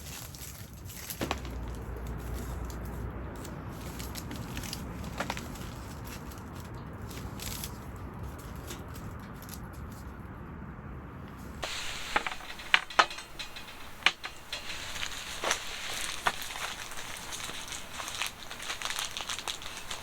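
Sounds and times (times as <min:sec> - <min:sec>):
bright hiss: 0:11.6 - 0:20.0
sharp clicks and crackles: 0:11.6 - 0:20.0.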